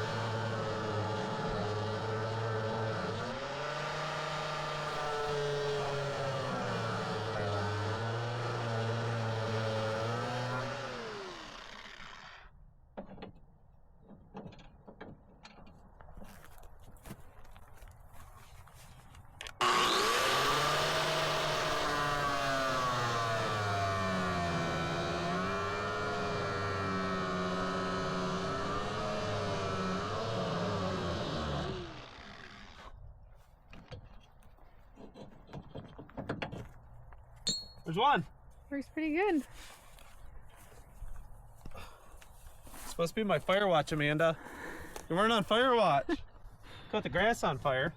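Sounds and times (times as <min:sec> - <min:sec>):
angle grinder whining: 0:00.0 - 0:12.5, 0:19.6 - 0:32.9.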